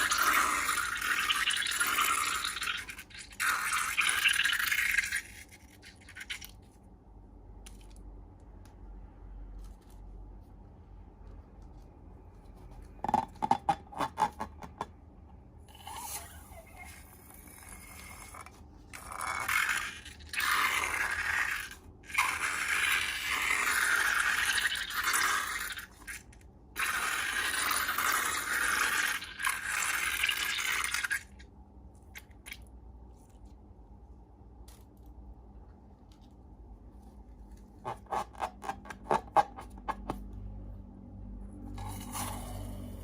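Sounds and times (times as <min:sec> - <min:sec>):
slime scraping and stirring: 0:34.5 - 0:40.3, 0:41.8 - 0:43.0.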